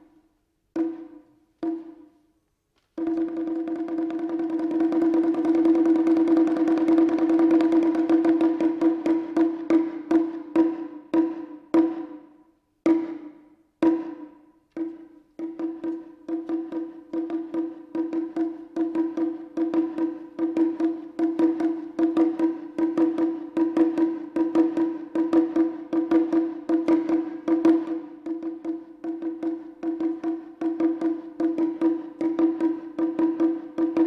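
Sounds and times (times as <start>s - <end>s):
taiko drum strokes: 0.8s - 2.2s.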